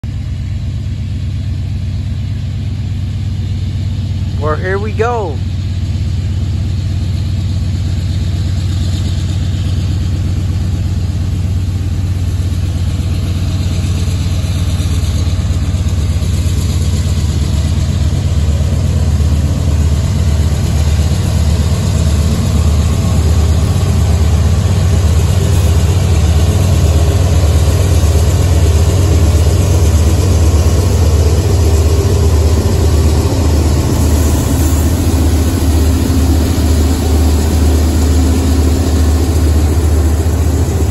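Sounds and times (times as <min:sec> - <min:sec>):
diesel locomotive engine drone: 0:00.0 - 0:40.9.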